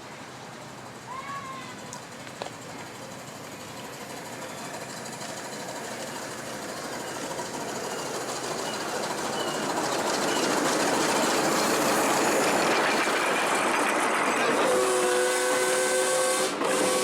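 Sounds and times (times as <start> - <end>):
miniature train locomotive running: 0.0 - 17.0
wheels clattering on rails: 0.3 - 15.2.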